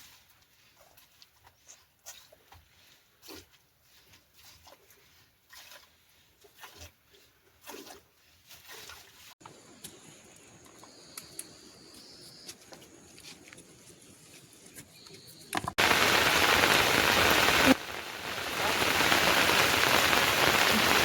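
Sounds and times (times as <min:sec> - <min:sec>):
heavy rain falling on surfaces: 0:15.8 - 0:21.0.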